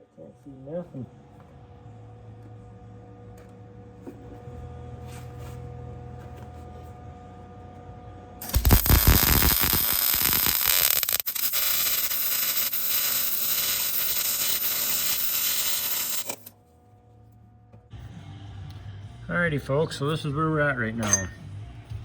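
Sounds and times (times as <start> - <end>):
electric arc crackling: 8.4 - 16.5.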